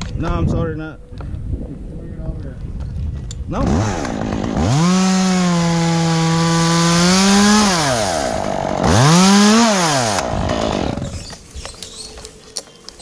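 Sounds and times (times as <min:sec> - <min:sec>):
chainsaw revving and idling: 0:03.6 - 0:11.2.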